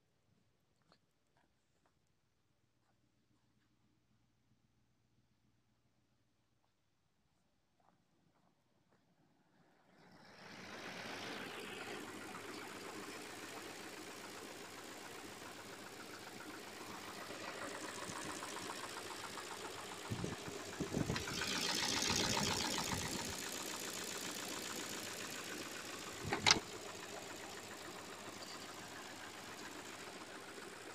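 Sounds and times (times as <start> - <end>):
car engine knocking: 11.5 - 30.9.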